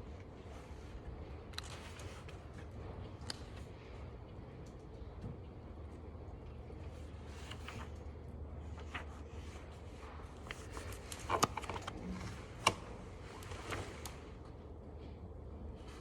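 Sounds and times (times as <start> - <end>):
ventilation hum: 0.0 - 16.0.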